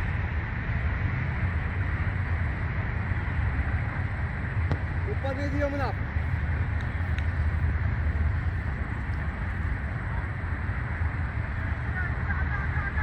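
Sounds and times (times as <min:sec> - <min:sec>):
wind buffeting microphone: 0:00.0 - 0:12.2.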